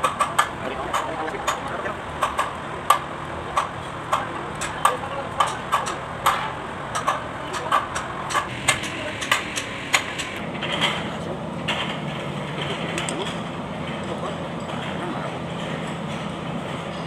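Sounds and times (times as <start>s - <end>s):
hand tools tapping on engine: 0.0s - 10.4s.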